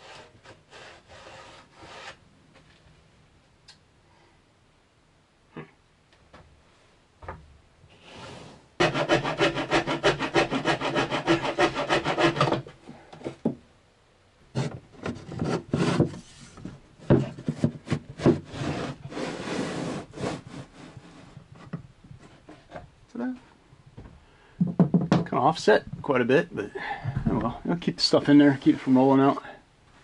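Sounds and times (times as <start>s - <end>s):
rasping and scraping on wood: 0.0s - 2.2s, 8.8s - 13.4s, 14.6s - 22.8s
knocks on wood: 24.0s - 25.3s.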